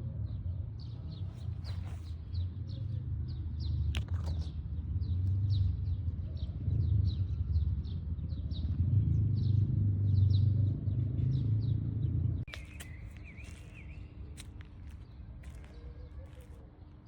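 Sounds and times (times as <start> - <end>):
small birds chirping: 9.4 - 17.0.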